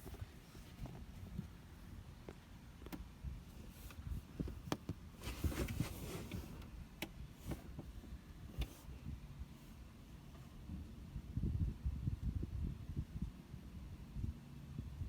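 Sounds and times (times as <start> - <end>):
rustling: 3.5 - 6.6.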